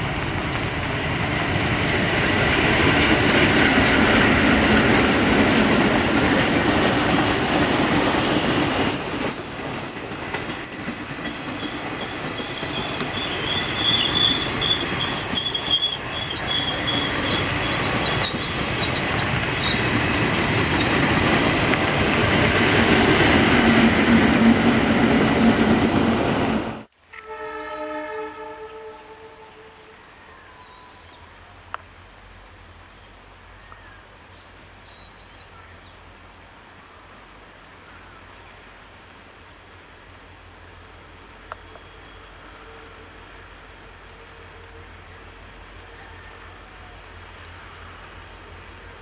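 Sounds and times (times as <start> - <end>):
train rumbling past: 0.0 - 31.6, 40.3 - 49.0
wheel squeal: 5.8 - 20.1.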